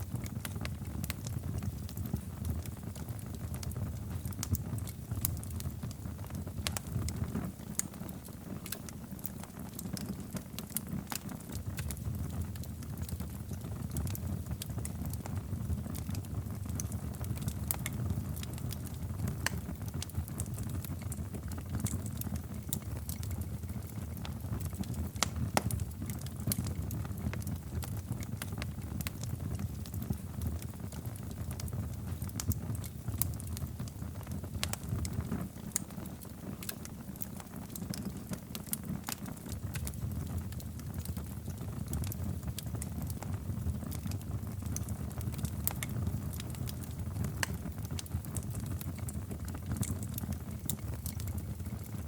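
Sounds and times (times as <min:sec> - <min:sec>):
low rumble of flames: 0:00.0 - 0:52.0
wood fire crackling: 0:00.0 - 0:52.0.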